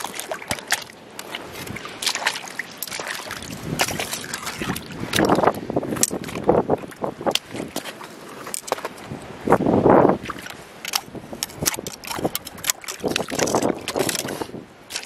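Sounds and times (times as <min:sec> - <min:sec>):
seawater sloshing: 0:00.0 - 0:15.0
stones clacking together: 0:10.9 - 0:15.0.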